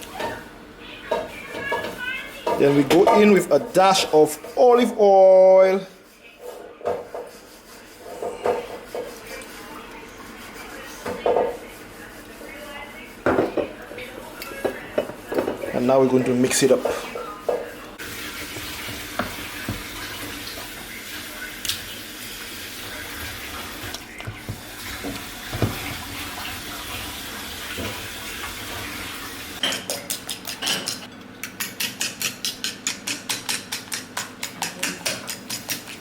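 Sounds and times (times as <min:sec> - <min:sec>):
tap running into a sink: 0:18.0 - 0:21.0, 0:23.5 - 0:29.2
whisk beating in a bowl: 0:31.6 - 0:36.0.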